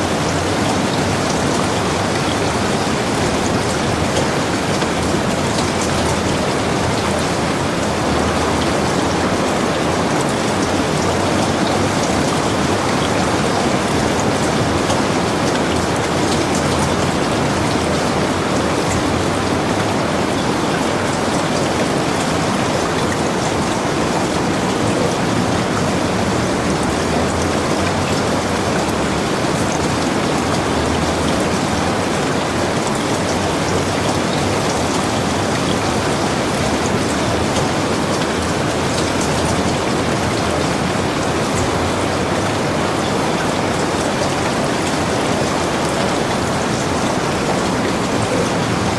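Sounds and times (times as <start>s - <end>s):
heavy rain pattering: 0.0s - 48.9s.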